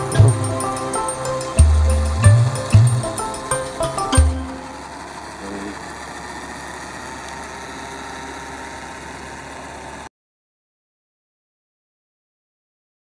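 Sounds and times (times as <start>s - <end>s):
engine idling: 0.0s - 10.1s.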